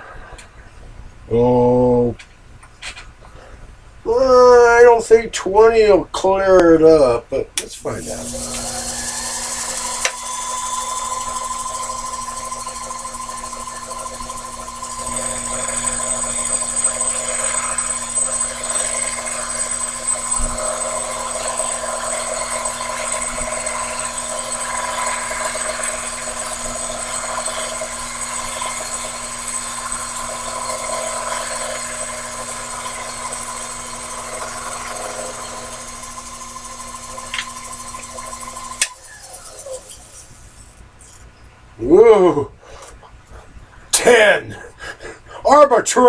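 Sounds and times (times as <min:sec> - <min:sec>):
tool cutting metal: 0:07.8 - 0:40.5
lathe whining: 0:07.8 - 0:41.2.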